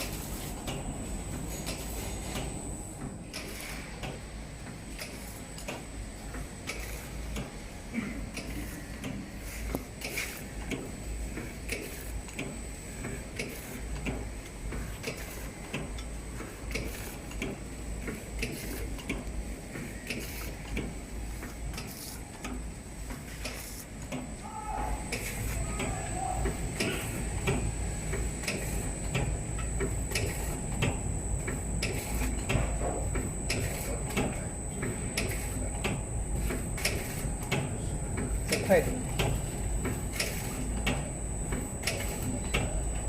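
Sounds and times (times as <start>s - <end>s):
low machine hum: 23.9s - 43.0s.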